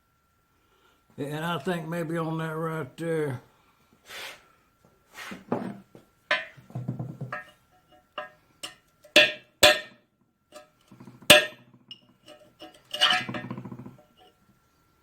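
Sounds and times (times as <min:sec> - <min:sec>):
hand tools striking metal: 0:06.3 - 0:14.0.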